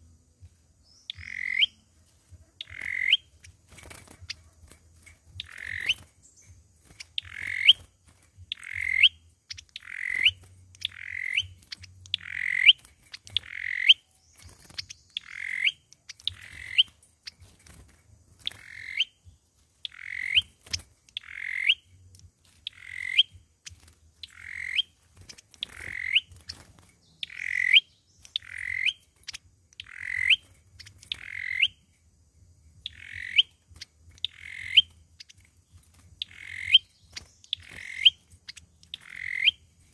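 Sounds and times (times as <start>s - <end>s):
bird calling harsh notes: 1.0s - 1.8s, 2.6s - 3.4s, 5.4s - 6.1s, 7.1s - 7.9s, 8.5s - 16.9s, 19.9s - 21.9s, 22.7s - 23.4s, 24.2s - 25.0s, 25.6s - 26.6s, 27.2s - 29.0s, 29.8s - 30.5s, 31.1s - 31.8s, 34.2s - 34.9s, 36.2s - 38.2s, 38.9s - 39.6s.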